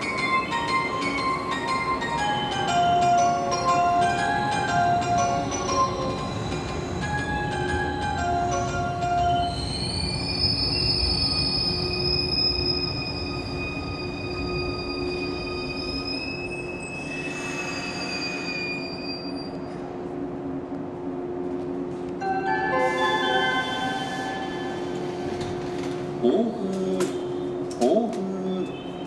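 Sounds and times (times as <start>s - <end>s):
train wheels rumbling and squealing: 0.0s - 20.4s, 21.4s - 26.2s
station arrival melody chime: 22.2s - 25.0s.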